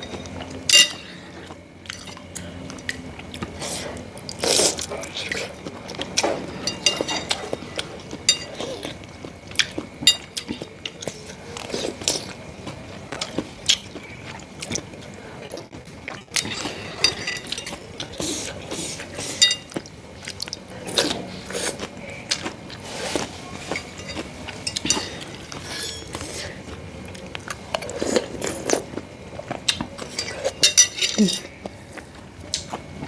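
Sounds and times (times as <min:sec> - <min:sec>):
person chewing with clicks: 0:07.0 - 0:16.6, 0:17.5 - 0:30.6, 0:31.6 - 0:33.0.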